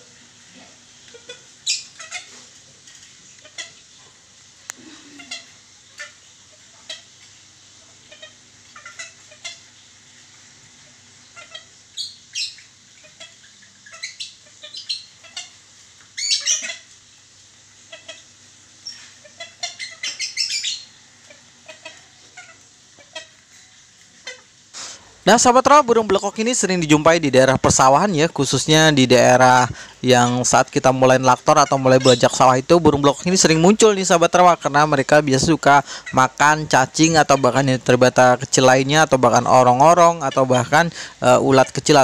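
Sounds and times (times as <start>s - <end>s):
birds chirping and squawking: 1.1s - 4.0s, 11.2s - 17.0s, 17.7s - 42.0s.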